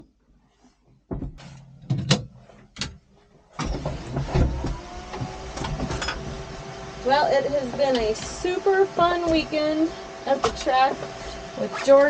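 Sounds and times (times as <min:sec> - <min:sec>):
sharp knocks and clunks: 0:01.1 - 0:03.0.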